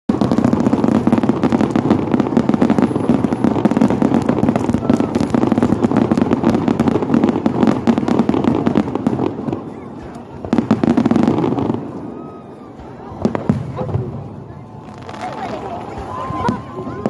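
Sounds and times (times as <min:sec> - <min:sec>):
fireworks and firecrackers banging: 0:00.1 - 0:17.0.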